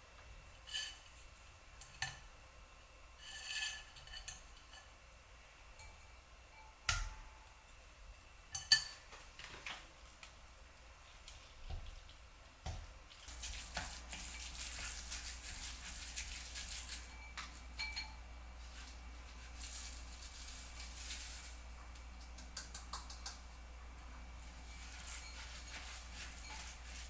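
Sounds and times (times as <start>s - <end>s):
dishes clinking: 8.5s - 9.1s, 16.8s - 18.2s, 24.5s - 27.0s
water running from tap into sink: 11.7s - 17.1s.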